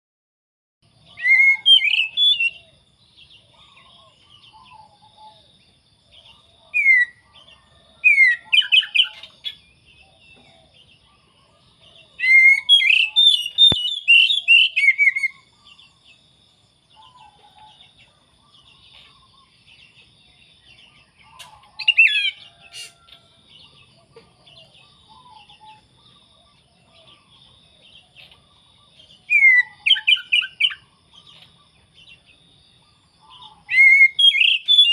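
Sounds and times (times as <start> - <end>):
bird singing whistled notes: 1.0 - 5.5, 6.2 - 11.4, 12.1 - 16.1, 20.8 - 23.9, 28.9 - 32.3, 33.0 - 34.9.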